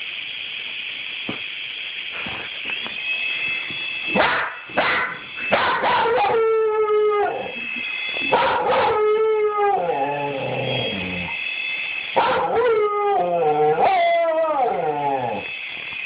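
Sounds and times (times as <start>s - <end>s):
dog barking: 4.2s - 6.3s, 8.3s - 9.0s, 12.2s - 12.6s
dog howling: 4.2s - 7.7s, 8.3s - 11.4s, 12.2s - 15.5s.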